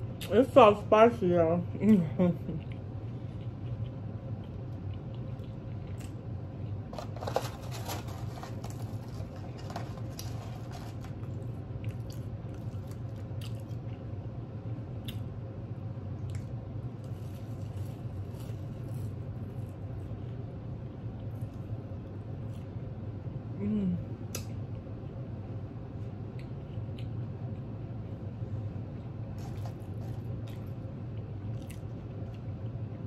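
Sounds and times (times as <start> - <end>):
steady low hum: 0.0 - 33.0
chewing and mouth sounds: 1.9 - 6.9, 8.6 - 14.1, 26.2 - 27.7, 29.0 - 33.0.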